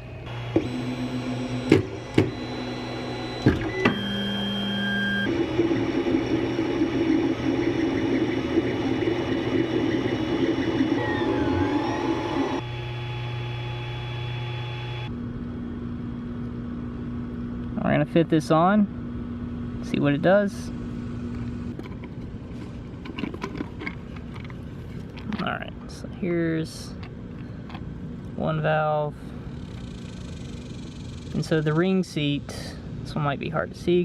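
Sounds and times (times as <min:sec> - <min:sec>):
printer stepper motors whining: 0:00.0 - 0:15.1.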